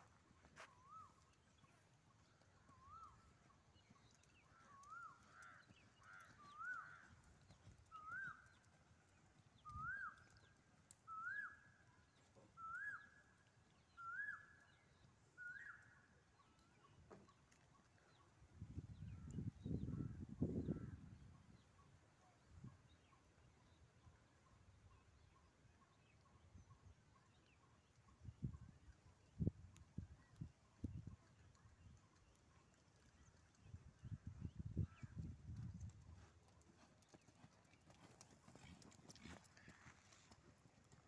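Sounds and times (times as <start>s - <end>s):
bird whistling calls: 11.1s - 11.7s, 12.6s - 13.2s.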